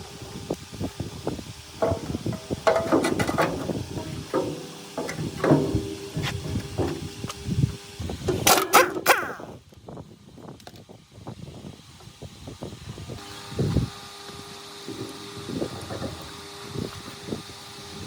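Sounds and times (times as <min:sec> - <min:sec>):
metal parts clanking: 0:01.8 - 0:07.4, 0:08.2 - 0:09.4, 0:14.9 - 0:16.3.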